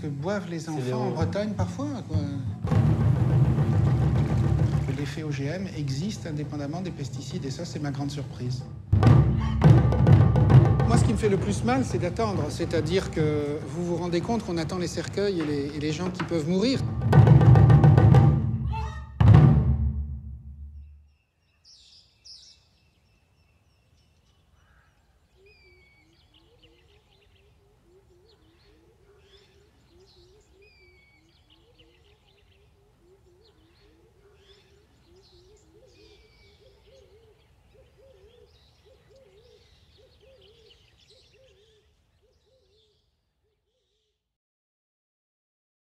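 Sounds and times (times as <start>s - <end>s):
low wavering hooting call: 9.3s - 10.6s
downward-slurred whistles: 9.4s - 10.0s.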